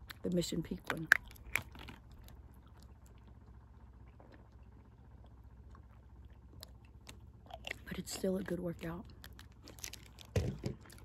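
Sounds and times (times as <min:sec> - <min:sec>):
chewing sandwich: 0:01.1 - 0:08.2, 0:09.0 - 0:11.0.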